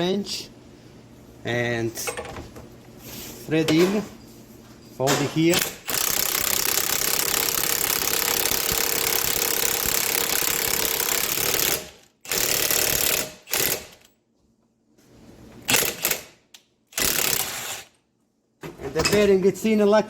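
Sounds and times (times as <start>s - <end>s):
impact wrench hammering: 5.5s - 14.0s.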